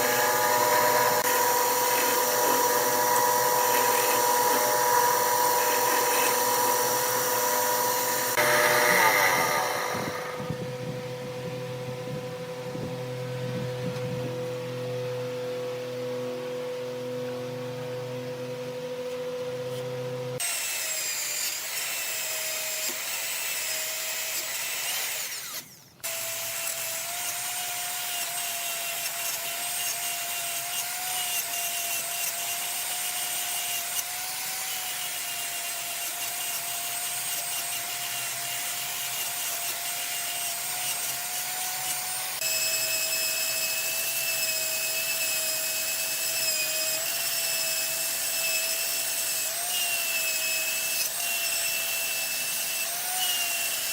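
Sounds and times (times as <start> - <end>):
cutting tool scraping wood: 0.0 - 10.6
wood lathe whining: 0.0 - 11.6, 30.2 - 53.9.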